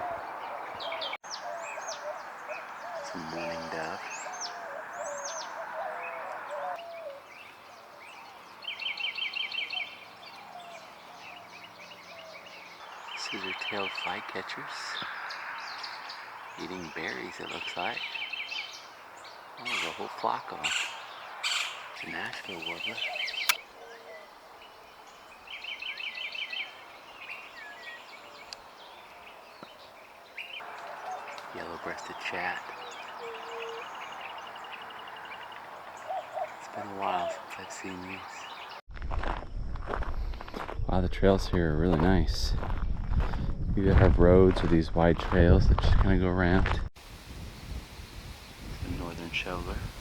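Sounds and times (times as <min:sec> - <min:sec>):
dove cooing: 0:00.0 - 0:08.3, 0:32.8 - 0:34.0, 0:36.0 - 0:37.9
birds trilling and chirping: 0:00.0 - 0:38.8, 0:47.0 - 0:50.0
short bird calls: 0:00.0 - 0:38.8
faint outdoor hiss: 0:06.9 - 0:38.8, 0:47.0 - 0:50.0.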